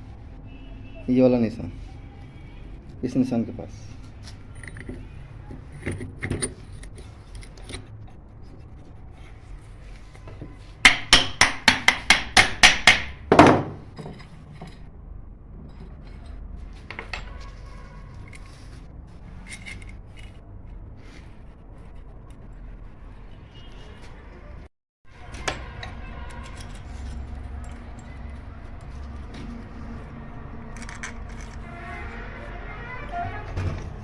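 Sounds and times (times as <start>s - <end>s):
tools clicking and scraping: 4.1s - 9.0s, 15.6s - 22.5s, 25.2s - 31.7s
hammer tapping: 10.8s - 13.7s.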